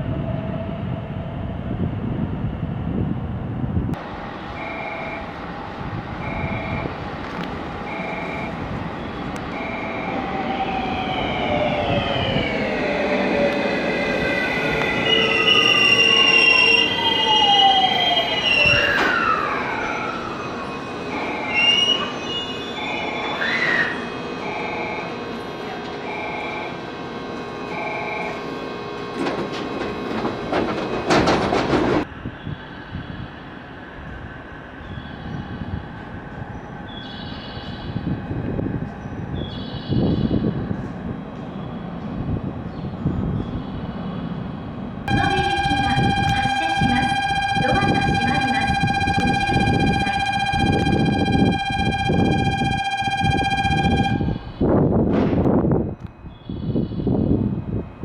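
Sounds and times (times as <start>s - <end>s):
electric train motor whine: 4.0s - 31.5s, 45.1s - 56.1s
wheel or brake squeals: 15.0s - 24.0s
two-note electronic beep: 45.1s - 54.4s.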